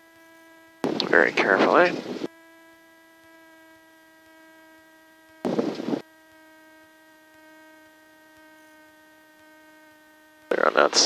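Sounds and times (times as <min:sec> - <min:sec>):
steady electrical hum: 0:00.0 - 0:11.0
loud burst of noise: 0:00.8 - 0:02.3, 0:03.7 - 0:06.0.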